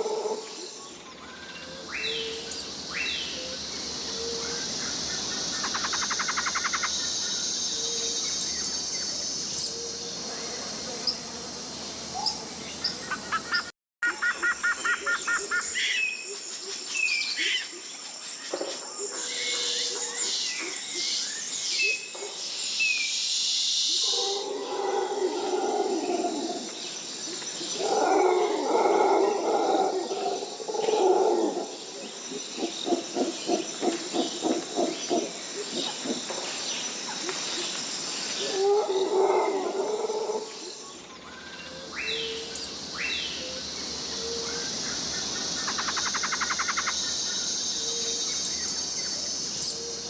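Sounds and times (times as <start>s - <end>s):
high insect drone: 0.0s - 13.7s, 19.2s - 50.0s.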